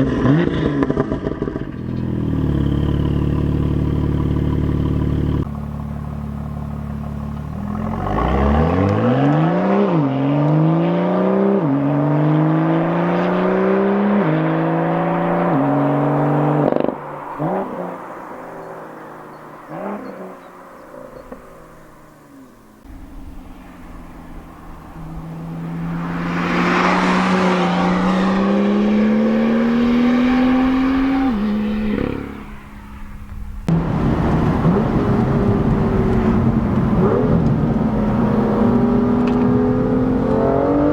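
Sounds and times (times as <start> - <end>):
car engine accelerating hard: 0.0 - 40.9
exhaust cracks: 21.0 - 40.5.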